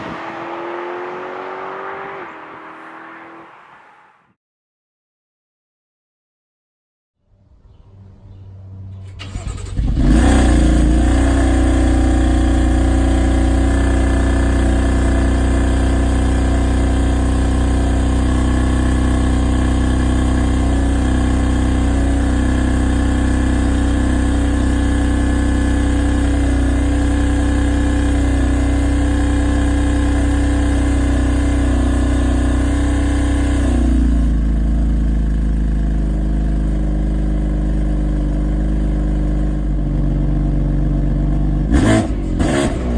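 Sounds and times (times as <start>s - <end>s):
car engine starting and idling: 8.8s - 42.9s.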